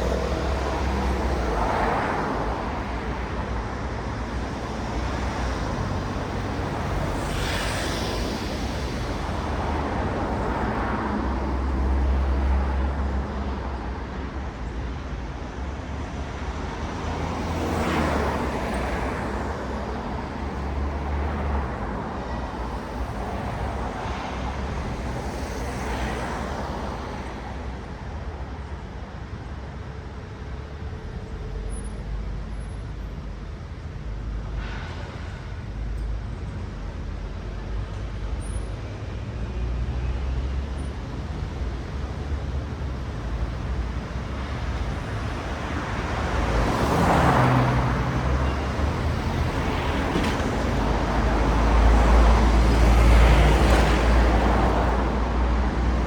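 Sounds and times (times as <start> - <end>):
cars passing: 0.0 - 28.2, 39.6 - 56.0
low rumble of engines and tyres: 0.0 - 56.0.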